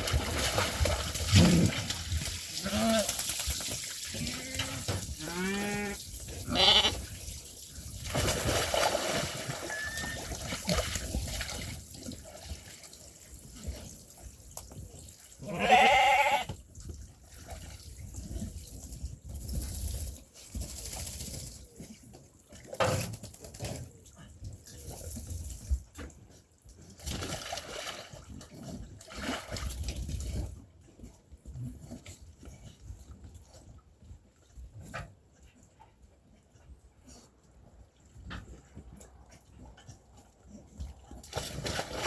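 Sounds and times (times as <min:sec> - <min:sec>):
sheep and lambs bleating: 0:04.3 - 0:07.0, 0:15.4 - 0:16.5.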